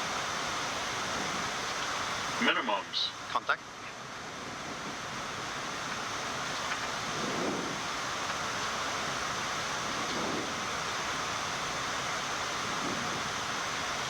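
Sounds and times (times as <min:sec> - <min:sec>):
air-conditioning noise: 0:00.0 - 0:14.0
cockpit airflow rushing: 0:03.9 - 0:14.0.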